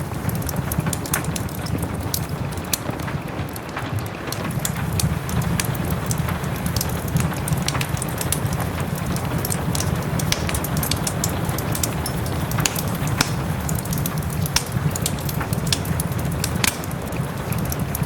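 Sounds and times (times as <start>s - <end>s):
rain hissing: 0.0s - 18.0s
wood fire crackling and popping: 0.0s - 18.0s.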